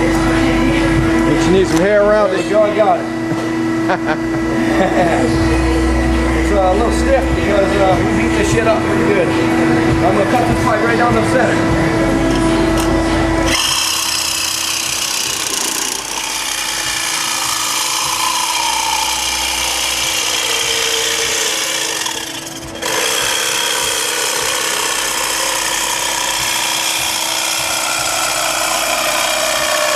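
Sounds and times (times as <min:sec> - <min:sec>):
reciprocating saw cutting steel pipe: 0:13.5 - 0:29.9.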